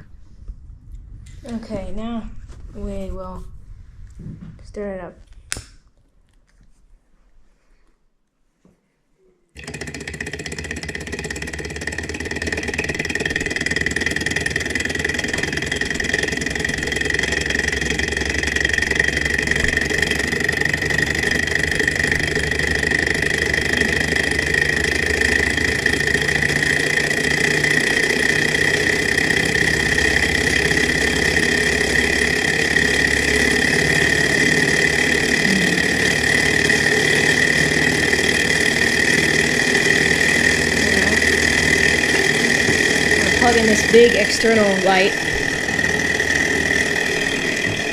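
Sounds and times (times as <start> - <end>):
small engine whirring and whining: 9.6 - 47.9.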